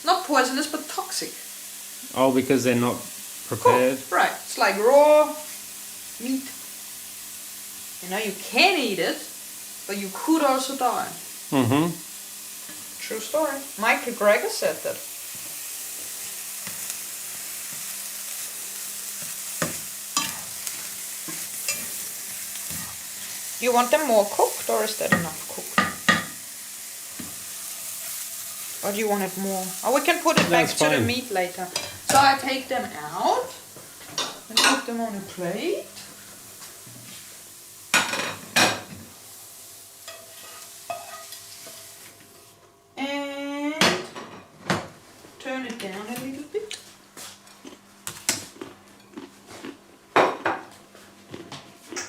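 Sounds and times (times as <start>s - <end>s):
mushrooms sizzling in a frying pan: 0.0s - 43.2s, 45.4s - 47.3s
utensil scraping frying pan: 15.2s - 32.5s, 40.0s - 42.1s.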